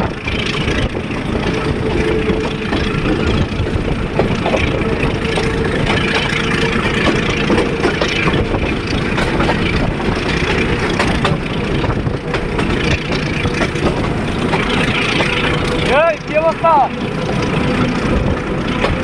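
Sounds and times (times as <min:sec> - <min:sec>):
train clicks: 0:00.0 - 0:19.0
train rumbling: 0:00.0 - 0:19.0.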